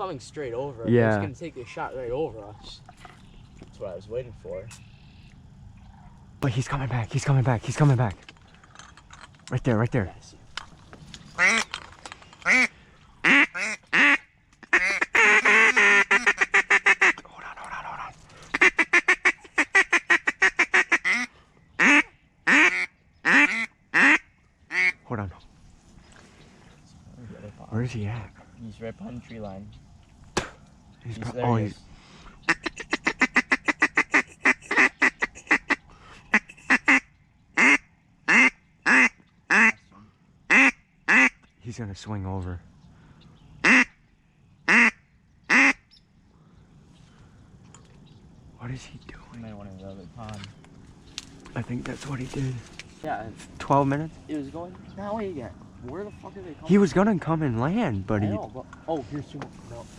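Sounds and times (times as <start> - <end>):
duck call quacking: 11.4 - 11.6, 12.4 - 17.2, 18.5 - 25.0, 32.5 - 39.8, 40.5 - 41.4, 43.6 - 44.0, 44.7 - 45.8.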